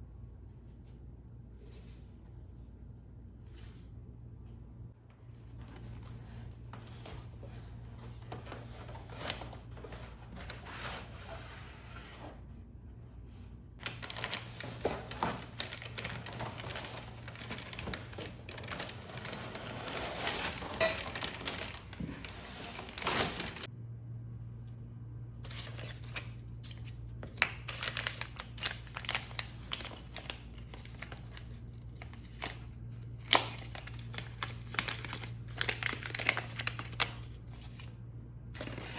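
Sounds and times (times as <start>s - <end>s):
steady low hum: 0.0s - 27.9s
crinkling and rustling: 13.8s - 23.7s, 25.4s - 37.9s.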